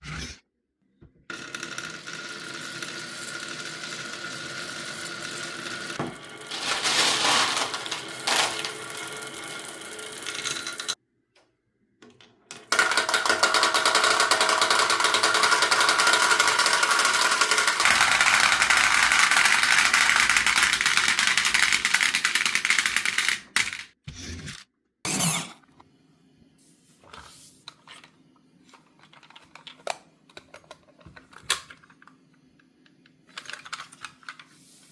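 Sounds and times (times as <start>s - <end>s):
marbles rattling down wooden run: 6.5s - 11.0s, 12.8s - 23.8s.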